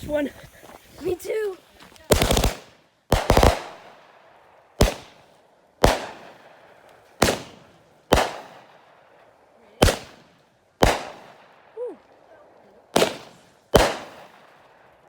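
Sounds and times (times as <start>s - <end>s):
fireworks bangs with echo: 2.0s - 11.8s, 12.9s - 14.8s.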